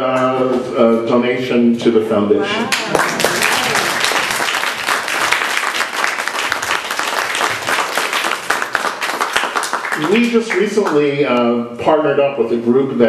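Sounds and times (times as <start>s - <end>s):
audience applauding: 2.7s - 11.1s.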